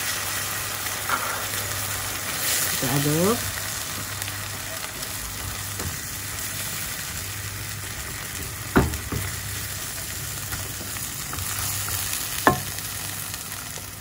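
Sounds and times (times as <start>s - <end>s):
food sizzling in hot oil: 0.0s - 14.0s
spatula knocking against pan: 12.4s - 12.7s.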